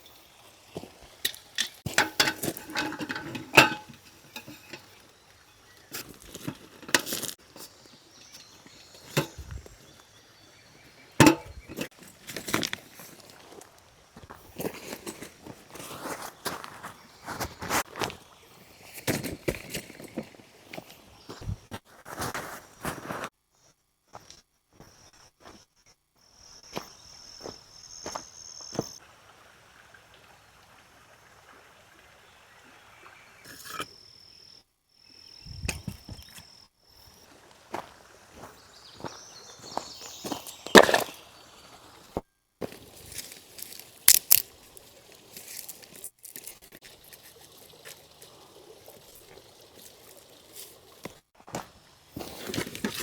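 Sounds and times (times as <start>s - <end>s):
clicks and rustles: 1.2s - 5.1s, 5.8s - 9.8s, 42.7s - 48.1s.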